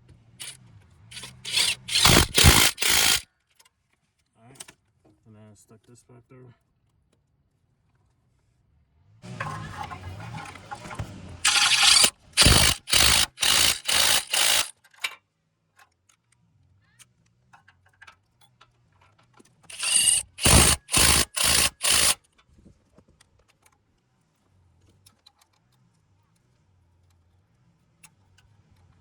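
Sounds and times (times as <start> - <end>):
socket ratchet clicking: 1.2 - 3.2, 11.4 - 14.7, 19.7 - 22.2.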